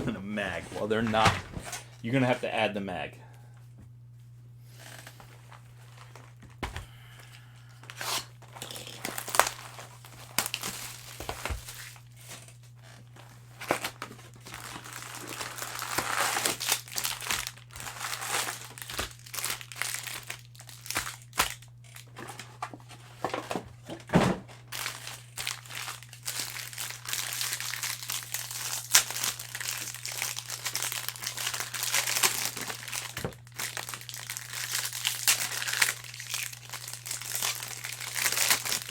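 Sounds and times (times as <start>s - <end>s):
steady low hum: 0.0s - 26.8s
card pack wrappers crinkling and tearing: 5.9s - 23.4s, 24.5s - 38.9s.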